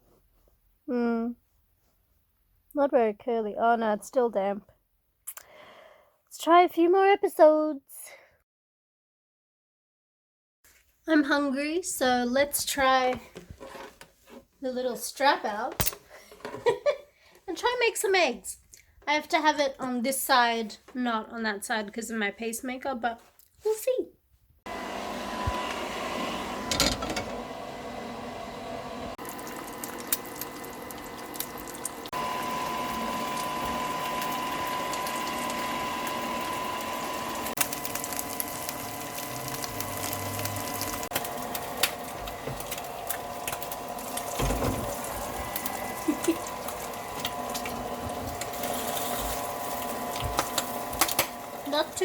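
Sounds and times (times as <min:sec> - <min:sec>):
hair dryer humming: 0:24.7 - 0:52.0.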